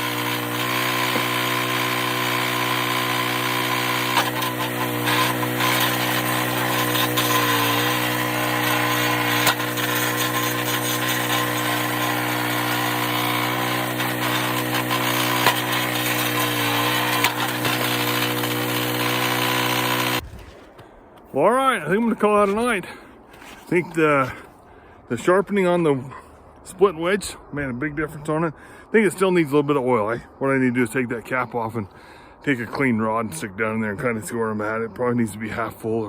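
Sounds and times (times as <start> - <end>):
log splitter engine running: 0.0 - 21.2
wood cracking: 0.1 - 24.8.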